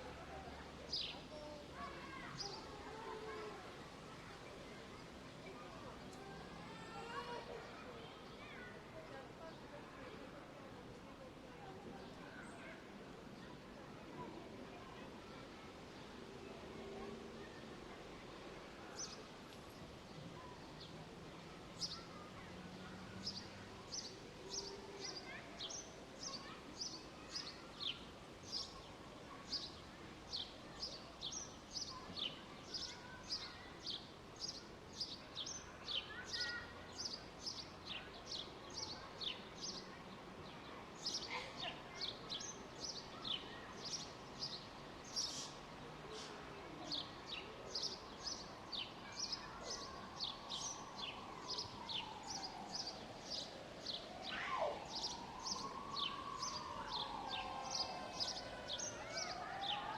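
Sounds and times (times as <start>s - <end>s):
small birds chirping: 23.2s - 45.6s, 46.2s - 59.9s.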